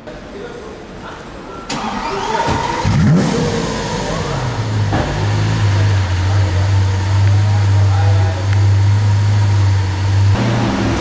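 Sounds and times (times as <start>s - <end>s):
sports car engine revving and idling: 2.1s - 11.0s.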